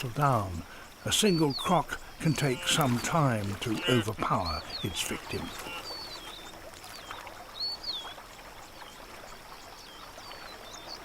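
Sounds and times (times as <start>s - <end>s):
river water splashing: 0.0s - 11.0s
bird whistling calls: 2.3s - 3.1s, 3.7s - 8.2s.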